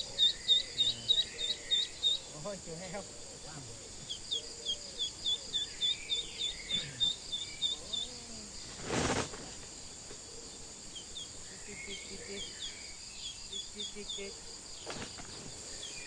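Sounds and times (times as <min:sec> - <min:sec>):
forest insects droning: 0:00.0 - 0:16.0
rustling: 0:08.0 - 0:10.2, 0:14.8 - 0:16.0.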